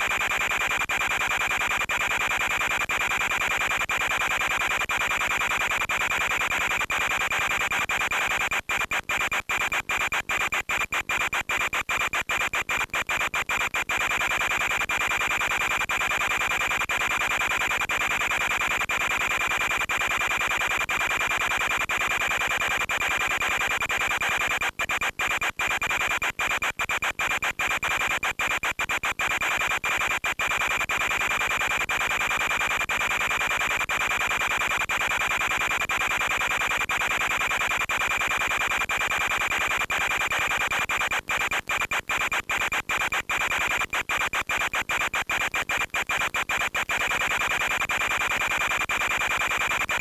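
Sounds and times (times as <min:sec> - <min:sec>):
radio static hiss: 0:22.2 - 0:31.4, 0:39.1 - 0:50.0.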